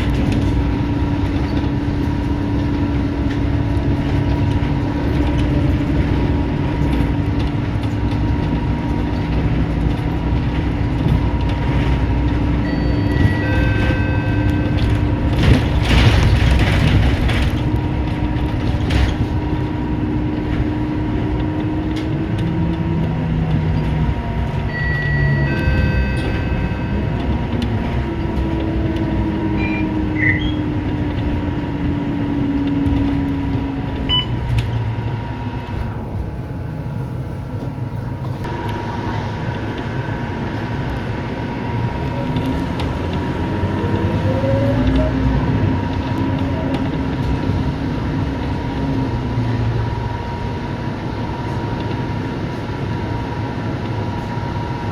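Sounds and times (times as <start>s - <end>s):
bus diesel engine under load: 0.0s - 54.9s
road and body rumble: 0.0s - 54.9s
short high beep: 12.7s - 14.8s, 24.7s - 27.2s, 29.6s - 30.6s.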